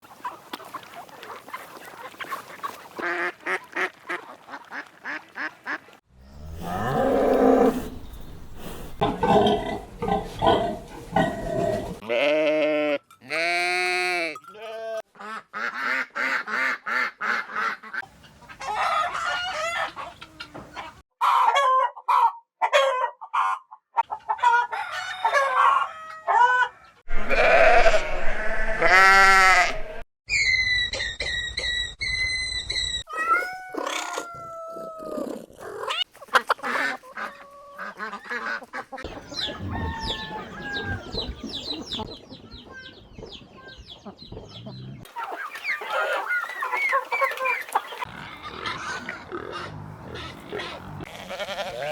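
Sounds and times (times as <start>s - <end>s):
chickens clucking and cackling: 0.0s - 5.9s, 7.1s - 12.0s, 15.1s - 27.1s, 33.2s - 51.1s
livestock calls: 35.8s - 41.8s, 44.6s - 51.9s.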